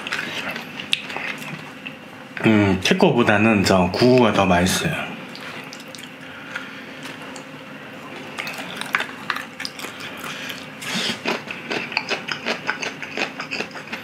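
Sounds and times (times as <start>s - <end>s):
person chewing food: 0.0s - 2.0s, 5.3s - 14.0s.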